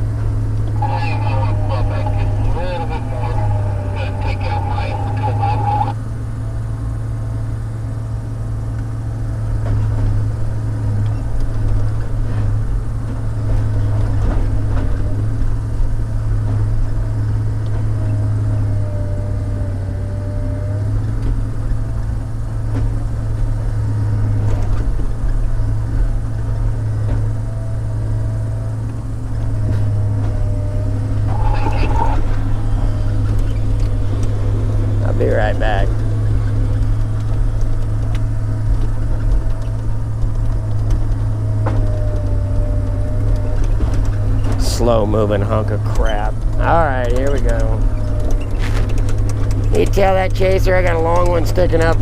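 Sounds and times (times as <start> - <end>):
diesel engine droning: 0.0 - 52.0
hydraulic whine: 13.4 - 52.0.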